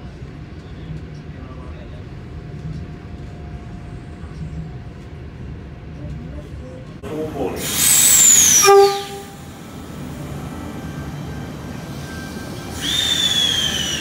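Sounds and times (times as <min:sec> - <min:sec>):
train rumble inside carriage: 0:00.0 - 0:14.0
train arriving with falling whistle: 0:07.5 - 0:09.7, 0:10.7 - 0:14.0
train horn: 0:08.4 - 0:09.6.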